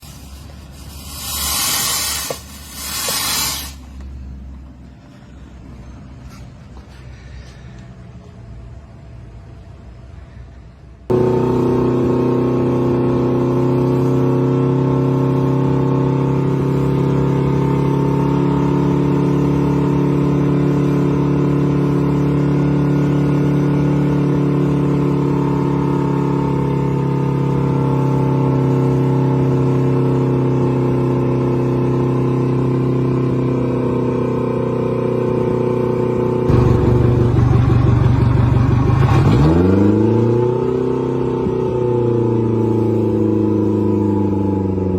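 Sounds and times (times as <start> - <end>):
motorboat engine running: 11.1 - 32.4, 35.0 - 40.3.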